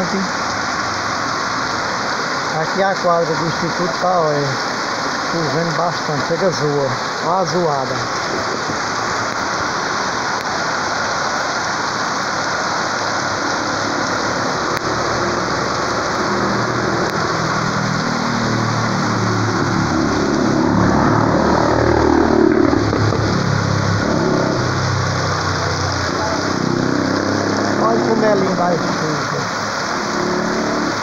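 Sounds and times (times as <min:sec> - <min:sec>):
heavy rain: 0:00.0 - 0:31.0
water splashing from roof spout: 0:00.0 - 0:31.0
car engine: 0:08.0 - 0:31.0.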